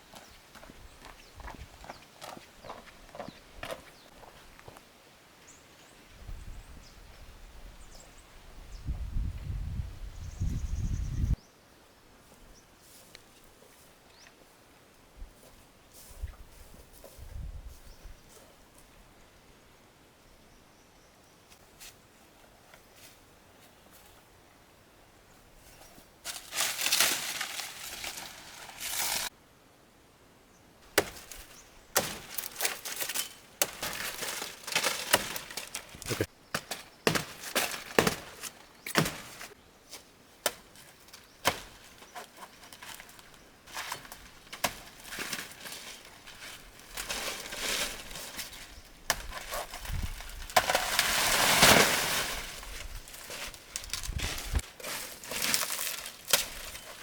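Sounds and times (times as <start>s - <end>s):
rustling of banana bunches: 25.6s - 29.3s, 30.9s - 57.0s
banana bunches being chopped: 31.0s - 31.4s, 33.6s - 39.5s.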